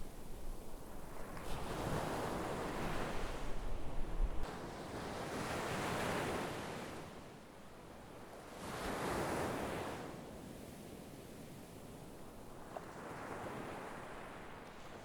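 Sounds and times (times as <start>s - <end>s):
wind rumble on microphone: 0.0s - 7.3s.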